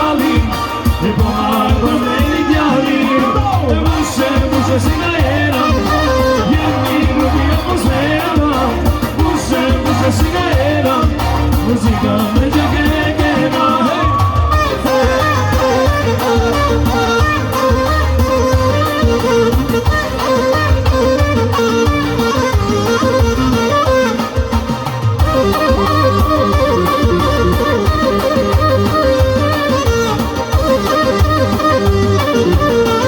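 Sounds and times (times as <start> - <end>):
person singing: 0.0 - 18.0
folk band playing: 0.0 - 33.0.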